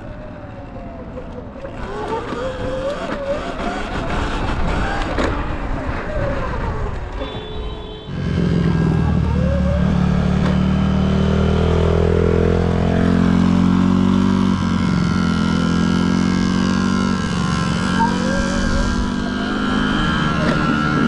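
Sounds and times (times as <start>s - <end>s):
dirt bike engine revving: 1.7s - 5.5s, 8.1s - 21.0s.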